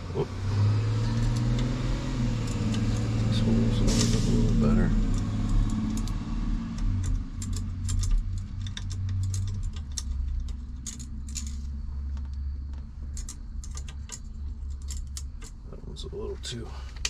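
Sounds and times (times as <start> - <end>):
steady low hum: 0.0 - 17.0
small metal hardware clinking: 6.8 - 11.7, 13.1 - 15.6.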